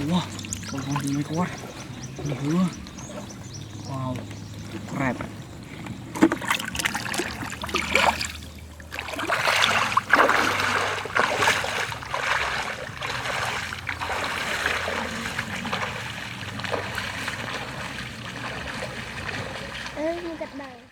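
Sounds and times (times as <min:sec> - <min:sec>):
shallow water splashing: 0:00.0 - 0:20.9.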